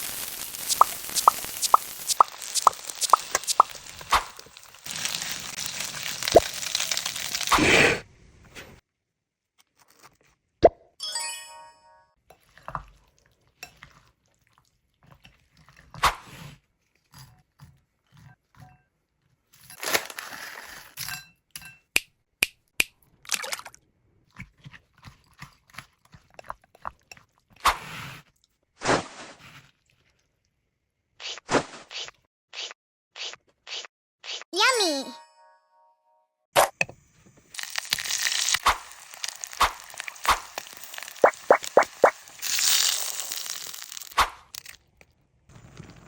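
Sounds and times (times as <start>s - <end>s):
clicks and knocks of utensils: 21.0s - 22.1s.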